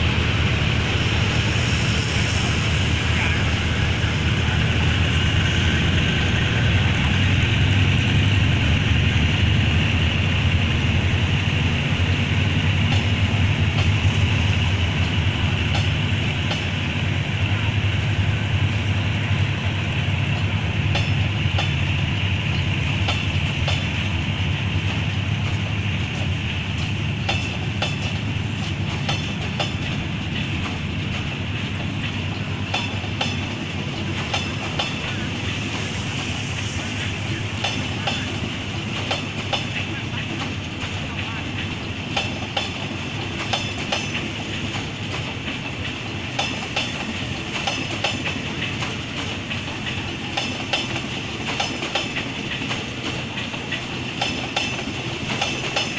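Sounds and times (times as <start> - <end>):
train low rumble: 0.0 - 55.9
wheels clicking over rail joints: 20.3 - 35.3, 37.6 - 55.9.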